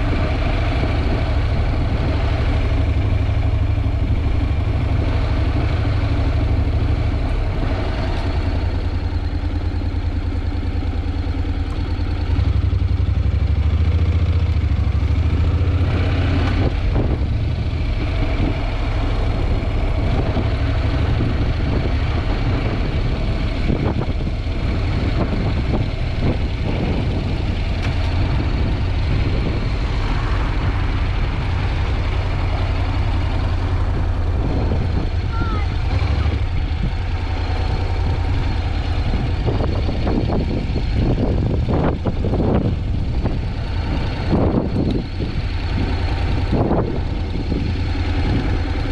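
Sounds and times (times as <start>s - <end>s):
motorcycle engine running: 0.0s - 48.9s
wind buffeting microphone: 12.4s - 48.9s.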